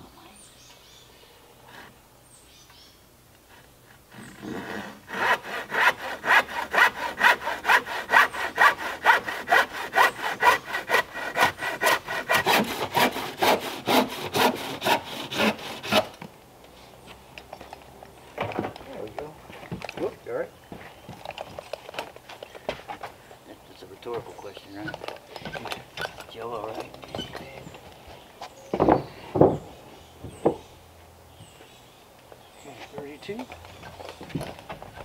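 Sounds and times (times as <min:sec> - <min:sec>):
hand saw cutting wood: 0:04.2 - 0:16.2.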